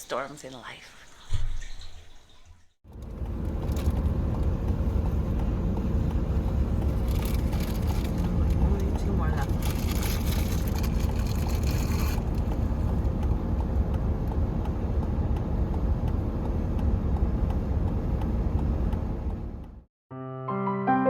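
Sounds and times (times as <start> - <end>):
vehicle engine rumble: 2.9 - 19.9.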